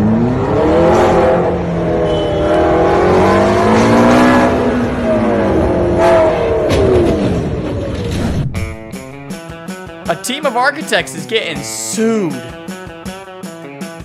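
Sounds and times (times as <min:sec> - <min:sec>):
car engine revving: 0:00.0 - 0:08.1.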